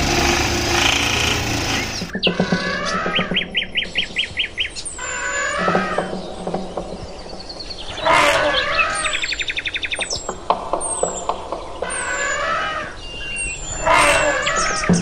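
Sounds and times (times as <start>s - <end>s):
loud harsh bird call: 0.0s - 6.3s, 7.8s - 10.2s, 11.8s - 15.0s
birds chirping: 0.0s - 15.0s.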